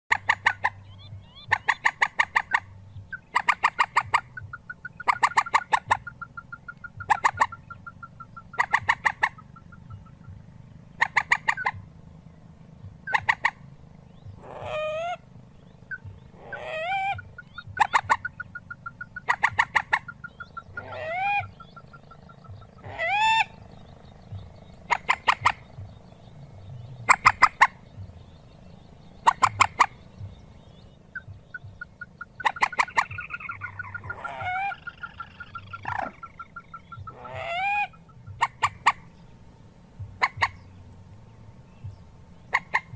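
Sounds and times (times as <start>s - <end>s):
harsh rising bird calls: 0.1s - 42.9s
rail bird calling: 0.1s - 42.9s.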